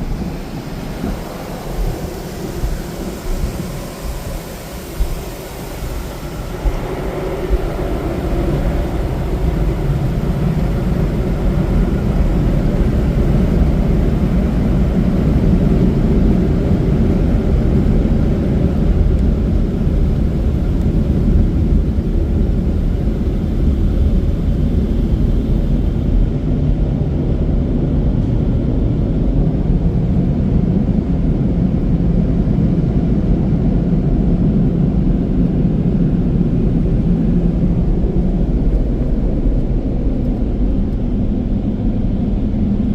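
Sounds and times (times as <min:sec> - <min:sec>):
car wash dryer blowers: 0:00.0 - 0:42.9.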